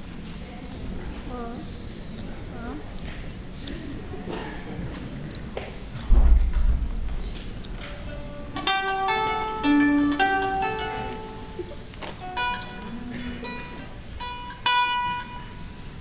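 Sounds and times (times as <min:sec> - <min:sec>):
ukulele plucked notes: 0:06.1 - 0:15.8.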